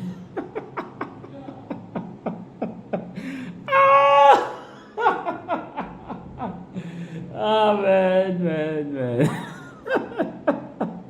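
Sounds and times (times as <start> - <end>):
man laughing: 0.0 - 7.0, 9.2 - 11.0.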